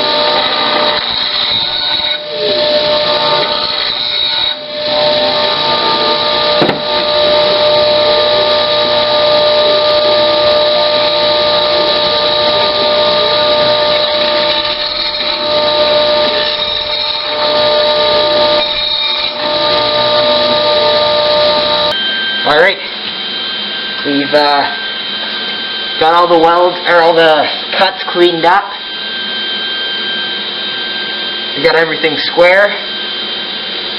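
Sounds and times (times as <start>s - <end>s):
power tool grinding steel: 0.0s - 33.9s.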